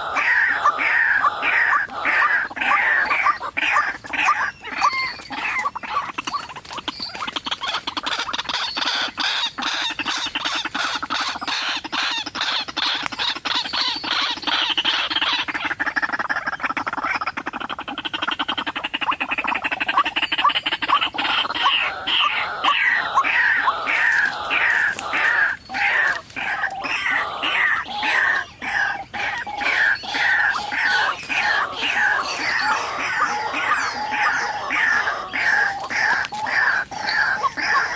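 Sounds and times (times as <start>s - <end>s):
waterhens calling: 0.0s - 37.9s.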